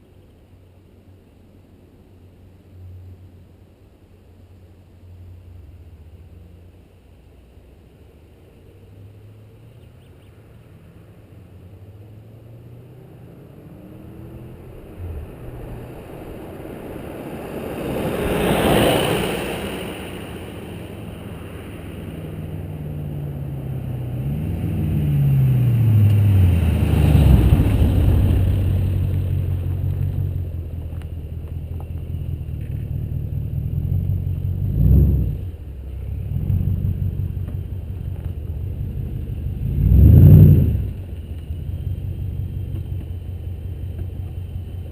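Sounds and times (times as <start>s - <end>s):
car engine driving by: 5.0s - 44.9s
car engine sharp rev: 12.5s - 31.0s, 32.2s - 44.9s.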